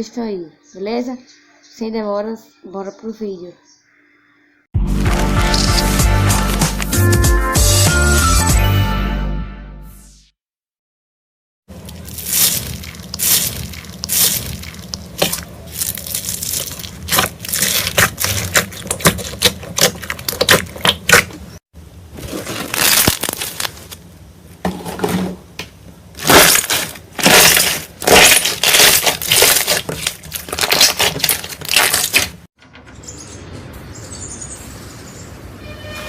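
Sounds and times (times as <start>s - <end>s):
slime crackling and popping: 11.8s - 21.4s, 22.5s - 24.0s, 26.2s - 32.4s.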